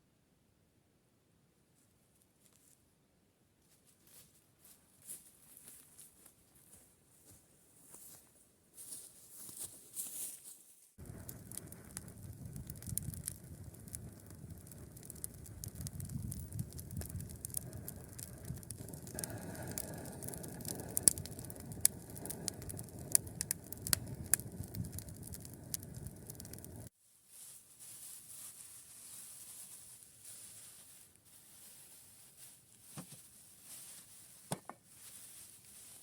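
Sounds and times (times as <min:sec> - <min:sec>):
wood fire crackling: 0:11.0 - 0:36.0.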